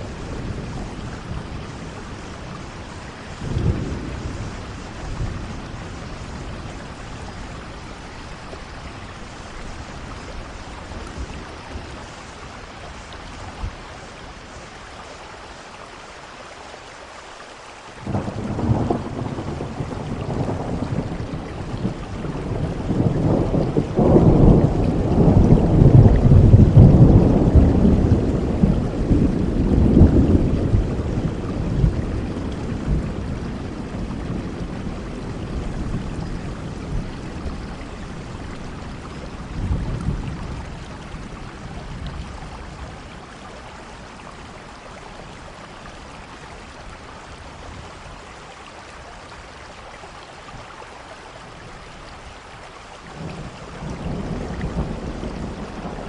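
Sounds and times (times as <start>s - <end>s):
rolling thunder: 0.0s - 12.2s, 18.0s - 43.3s, 53.2s - 56.0s
steady rain: 0.0s - 56.0s.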